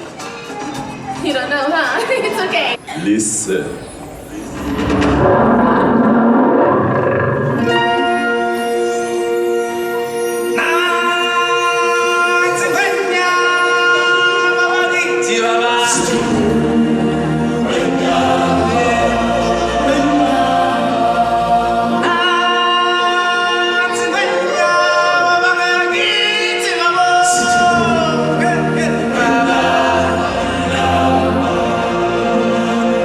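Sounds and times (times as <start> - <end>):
group singing a cappella harmony: 10.6 - 33.0.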